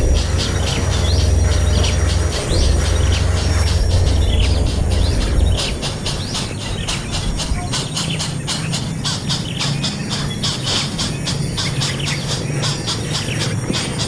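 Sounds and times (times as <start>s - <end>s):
low rumble: 0.0s - 8.6s
small birds chirping: 0.0s - 14.0s.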